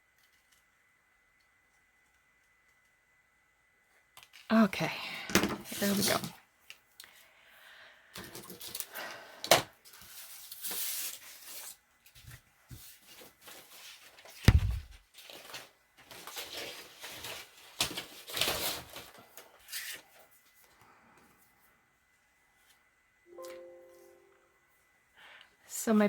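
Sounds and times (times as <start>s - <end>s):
paper sheets rustling and sliding: 12.7s - 20.1s
dull thump: 14.5s - 15.0s.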